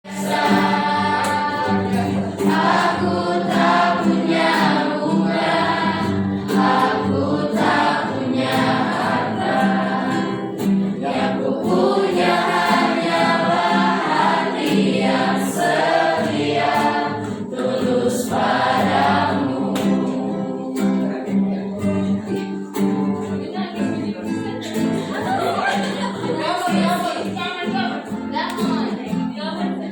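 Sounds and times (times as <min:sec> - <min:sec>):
students singing in unison: 0:00.0 - 0:22.3.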